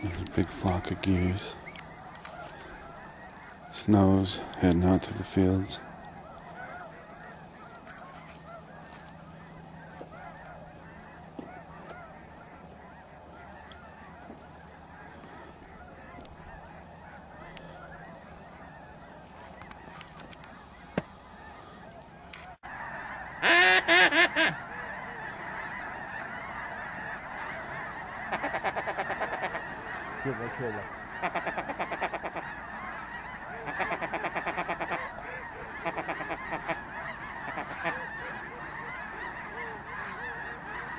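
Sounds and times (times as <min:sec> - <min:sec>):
flock of geese honking: 0:00.0 - 0:40.9.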